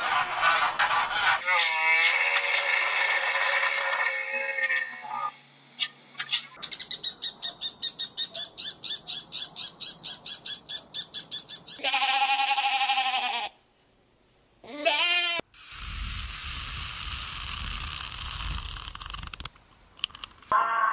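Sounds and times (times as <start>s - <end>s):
animal high chirps: 6.6s - 11.8s.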